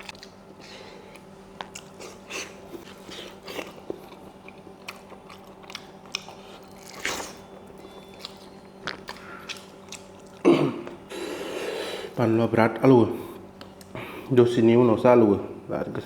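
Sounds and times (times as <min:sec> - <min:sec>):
lip smacking: 0:00.0 - 0:11.0
person chewing and crunching food: 0:00.0 - 0:12.2.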